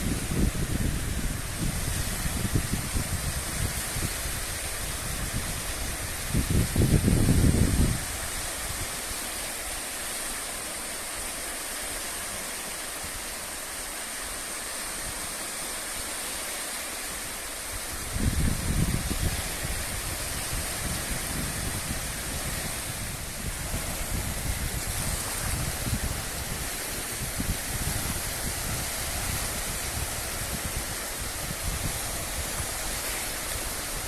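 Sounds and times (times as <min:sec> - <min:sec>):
wind buffeting microphone: 0:00.0 - 0:09.1, 0:17.7 - 0:34.0.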